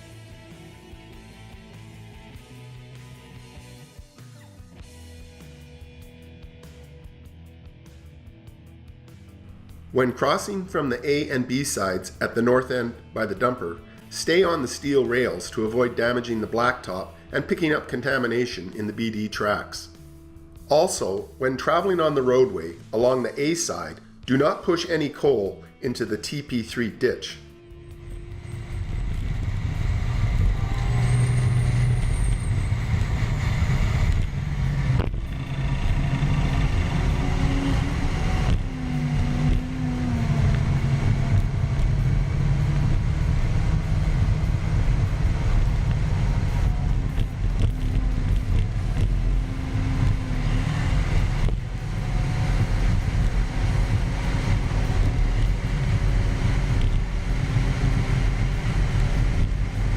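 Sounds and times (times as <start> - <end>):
bulldozer diesel engine running: 28.0 - 59.9.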